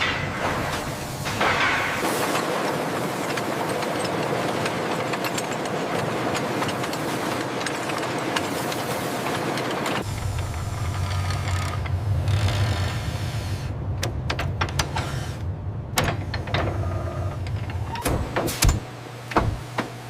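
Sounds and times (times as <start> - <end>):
machinery rattling: 0.0 - 18.6.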